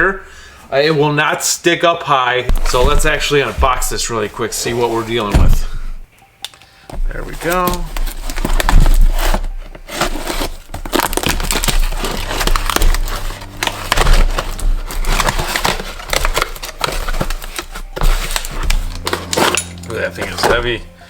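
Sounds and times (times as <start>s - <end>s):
cardboard box being torn open: 7.7s - 20.8s.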